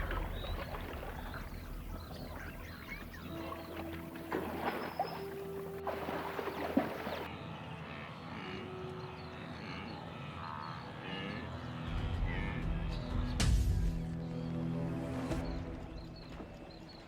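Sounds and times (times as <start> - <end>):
rushing crackling water: 0.0 - 7.3.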